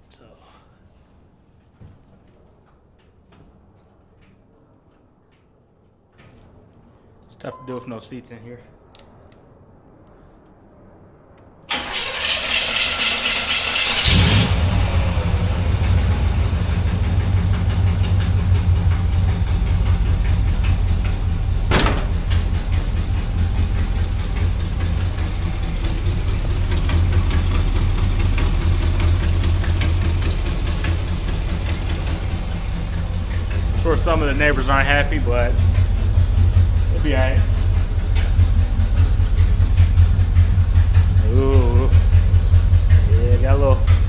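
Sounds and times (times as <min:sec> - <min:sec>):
starter motor cranking: 0:11.7 - 0:14.8
car engine idling: 0:11.7 - 0:44.0.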